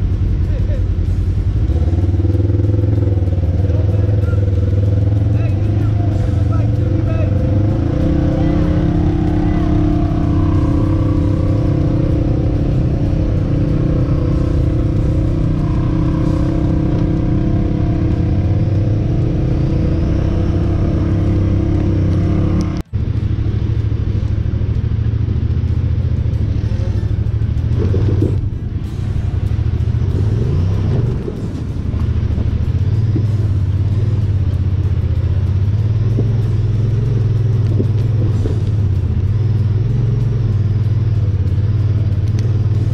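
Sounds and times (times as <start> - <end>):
utility vehicle engine running: 0.0 - 42.9.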